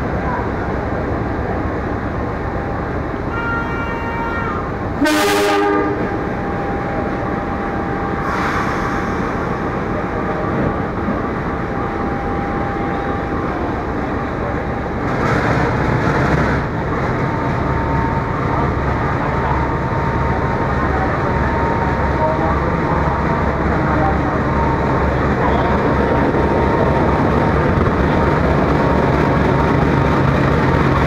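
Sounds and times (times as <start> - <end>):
diesel train engine rumble: 0.0 - 31.0
air hissing: 8.2 - 9.5.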